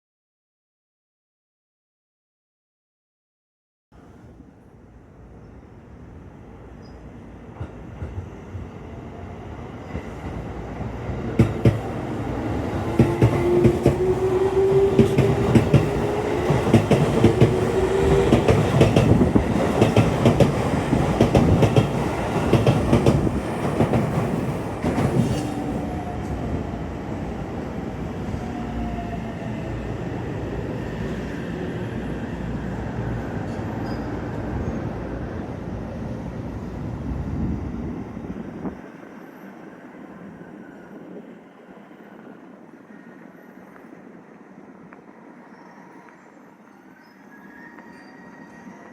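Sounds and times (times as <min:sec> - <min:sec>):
faint train whine: 0:04.0 - 0:48.9.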